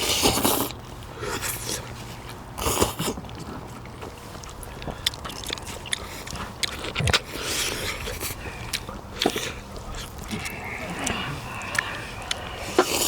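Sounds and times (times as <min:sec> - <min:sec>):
person chewing and biting: 0:02.6 - 0:13.0.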